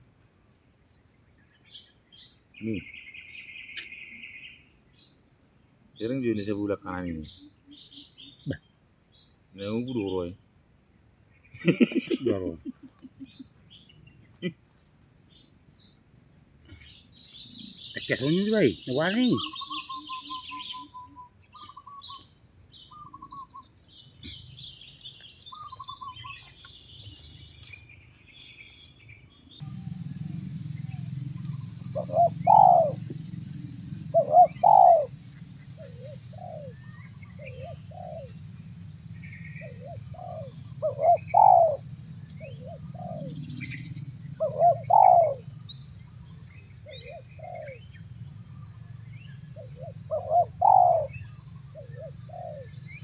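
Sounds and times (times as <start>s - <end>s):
small birds chirping faintly: 0.0s - 53.0s
steady low hum: 8.6s - 18.1s, 22.3s - 53.0s
doves cooing: 16.6s - 22.3s, 29.5s - 53.0s.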